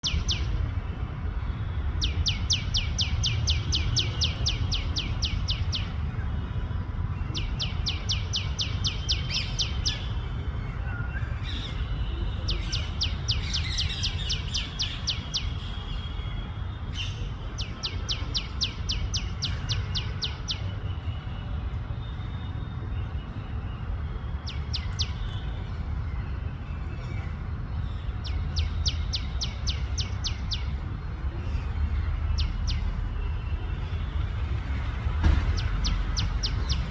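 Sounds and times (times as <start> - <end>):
bird chirping rapidly: 2.0 - 6.0, 7.4 - 10.3, 11.4 - 20.7, 28.2 - 30.9, 31.9 - 33.2, 35.4 - 36.9.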